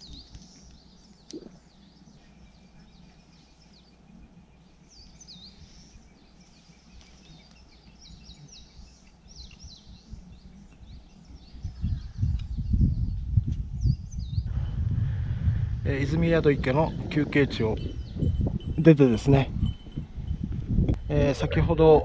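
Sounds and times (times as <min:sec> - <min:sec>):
birds singing and chirping: 0:00.0 - 0:22.0
faint low rumble: 0:10.0 - 0:17.4.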